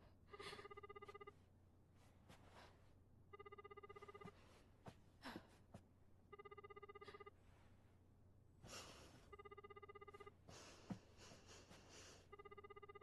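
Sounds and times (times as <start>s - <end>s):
faint trilling telephone ring: 0.3s - 1.4s, 3.3s - 4.4s, 6.3s - 7.4s, 9.3s - 10.3s, 12.3s - 13.0s.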